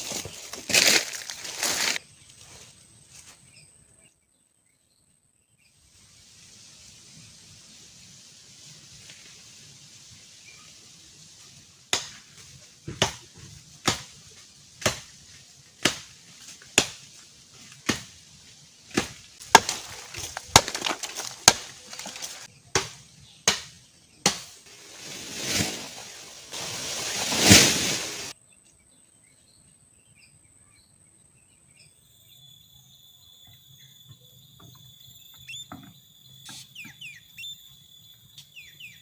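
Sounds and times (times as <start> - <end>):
blade chopping bamboo: 11.9 - 12.3, 12.9 - 14.2, 14.8 - 15.2, 15.8 - 17.1, 17.8 - 18.2, 18.9 - 24.6.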